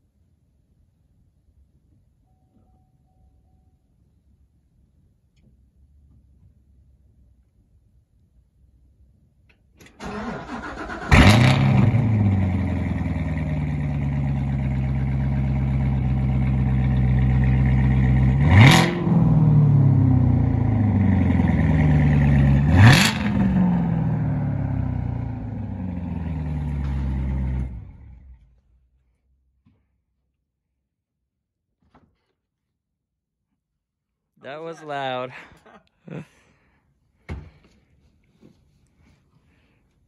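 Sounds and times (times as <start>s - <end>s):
car engine idling: 10.0s - 28.6s
engine throttle blips: 10.0s - 28.6s.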